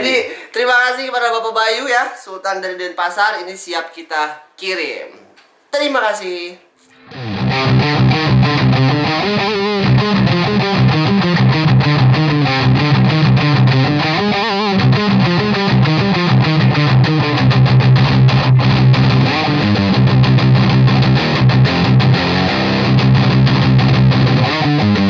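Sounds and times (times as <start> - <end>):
distorted electric guitar riff: 6.8 - 25.0.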